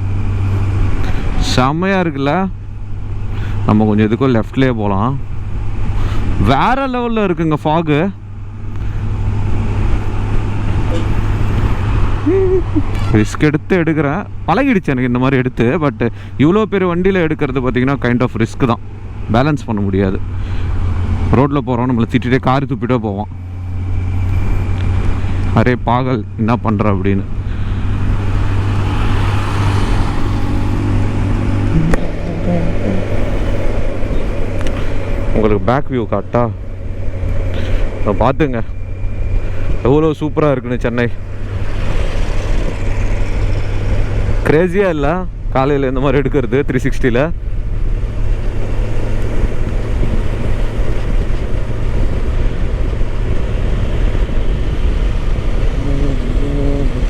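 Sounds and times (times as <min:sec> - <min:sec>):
motorcycle engine cruising: 0:00.0 - 0:46.4, 0:47.3 - 0:57.0
wind and road noise: 0:00.0 - 0:57.0
wind rushing over microphone: 0:27.2 - 0:36.3
motorcycle engine running at speed: 0:27.8 - 0:35.4, 0:47.4 - 0:57.0.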